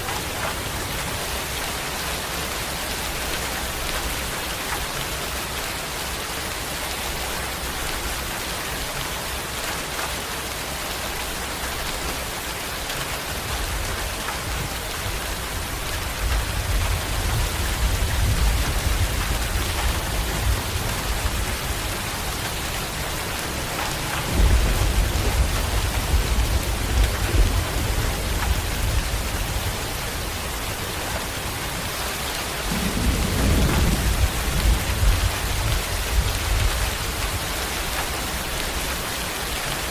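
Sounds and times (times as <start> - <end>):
steady rain falling: 0.0 - 39.9
rolling thunder: 13.5 - 31.9, 32.6 - 37.4.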